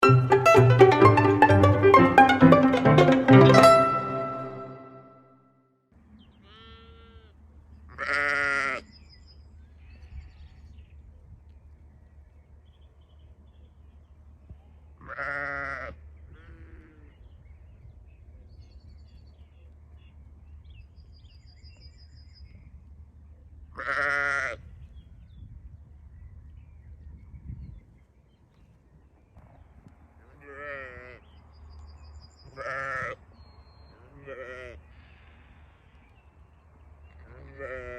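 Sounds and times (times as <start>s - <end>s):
sheep bleating: 8.0s - 8.8s, 15.0s - 17.0s, 23.8s - 24.6s, 30.4s - 31.2s.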